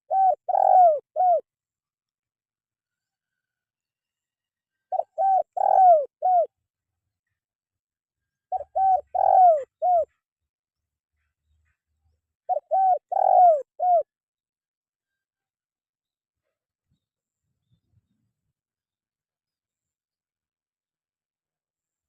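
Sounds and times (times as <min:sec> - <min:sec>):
dove cooing: 0:00.0 - 0:01.5, 0:04.9 - 0:06.5, 0:08.5 - 0:10.2, 0:12.5 - 0:14.1.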